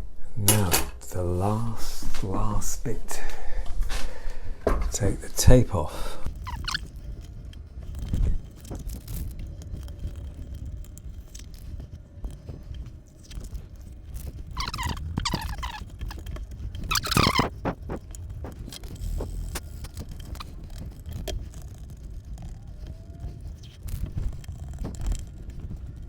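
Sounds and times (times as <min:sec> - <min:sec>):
tape peeling off wood: 0:06.3 - 0:26.0.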